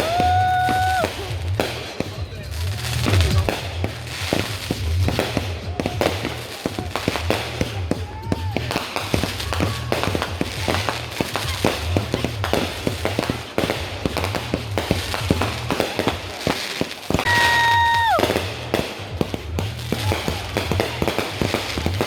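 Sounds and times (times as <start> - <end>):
firework whistle: 0.0 - 1.4, 17.1 - 18.6
music with bass line: 0.0 - 16.0, 17.4 - 22.0
fireworks popping and crackling: 0.0 - 22.0.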